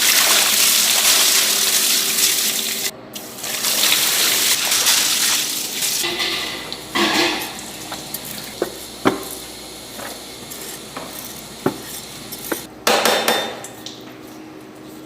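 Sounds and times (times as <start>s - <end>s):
utensils knocking containers: 6.0s - 9.4s.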